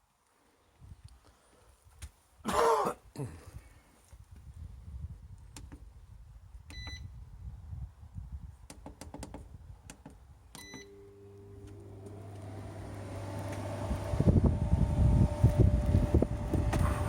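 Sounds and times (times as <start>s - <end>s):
air conditioner humming: 10.9s - 17.0s
fan motor spinning up: 11.2s - 17.0s.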